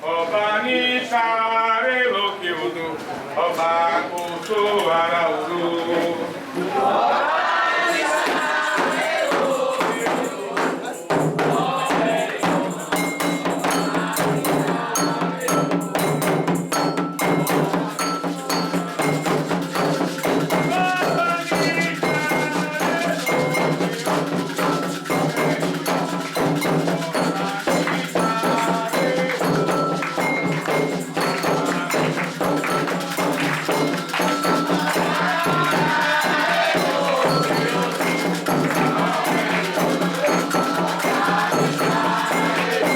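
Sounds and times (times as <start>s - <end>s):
voices singing: 0.0s - 42.9s
hand drums beating: 8.0s - 42.9s
ringing metal bell: 12.5s - 42.9s.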